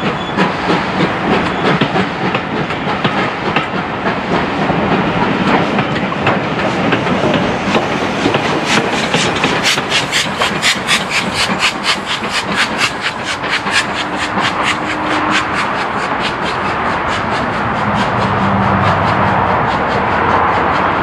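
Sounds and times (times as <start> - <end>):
steam locomotive chuffing: 0.0 - 21.0.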